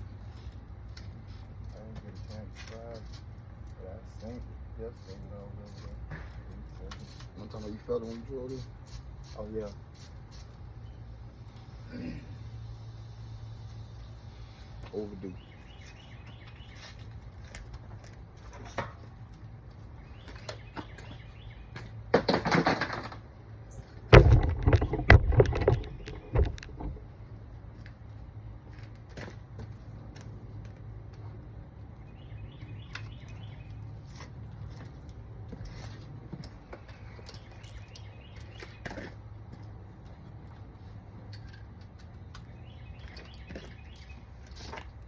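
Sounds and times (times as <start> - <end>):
birds chirping: 13.6 - 22.1, 23.6 - 27.5, 31.2 - 40.2, 40.9 - 44.8
metallic knocks and rattles: 24.1 - 27.1.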